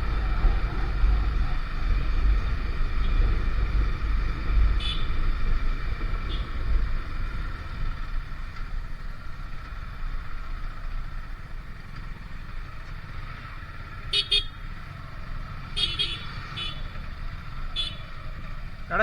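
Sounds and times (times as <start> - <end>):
motorcycle engine and road rumble: 0.0 - 19.0.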